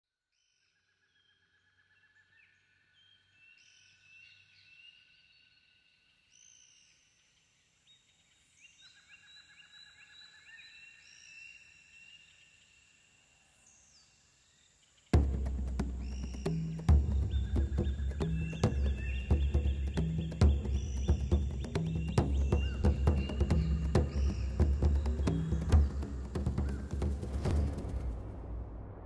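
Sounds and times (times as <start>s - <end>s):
birds singing: 1.2s - 12.9s, 13.6s - 27.6s
bird trill: 15.2s - 27.7s.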